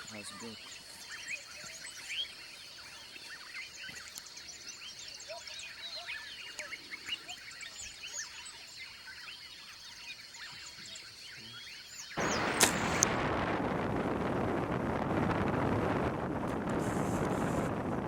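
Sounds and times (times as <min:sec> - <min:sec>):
birds chirping chorus: 0:00.0 - 0:13.4.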